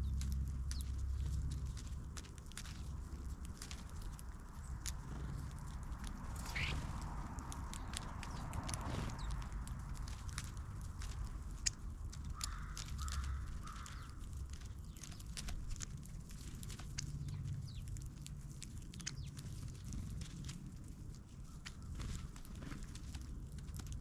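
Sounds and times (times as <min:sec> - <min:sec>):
steady low rumble: 0:00.0 - 0:24.0
crow cawing: 0:06.4 - 0:06.8, 0:12.3 - 0:14.2.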